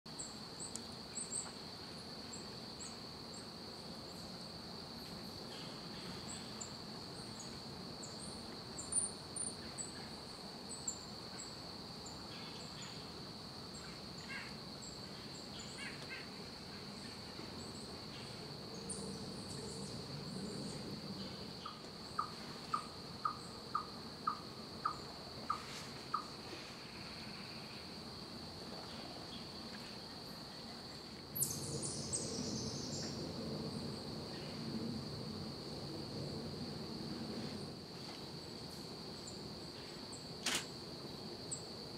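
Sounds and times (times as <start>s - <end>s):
high insect drone: 0.1s - 41.9s
songbirds calling: 21.2s - 26.4s.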